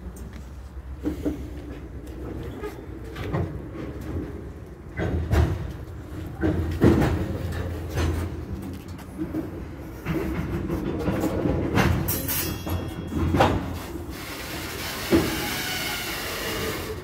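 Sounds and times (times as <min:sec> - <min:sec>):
train wheels rumbling on rail: 0:00.0 - 0:17.0
train car clunks: 0:00.9 - 0:17.0
high wheel squeal: 0:14.1 - 0:17.0
hiss: 0:14.1 - 0:17.0.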